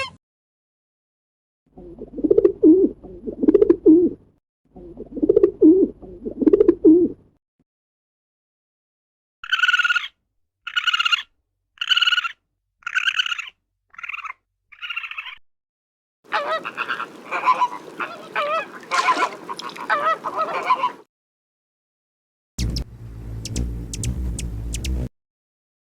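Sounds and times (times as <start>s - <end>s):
flock of birds calling: 16.3s - 21.0s
waterfowl calling: 16.3s - 21.1s.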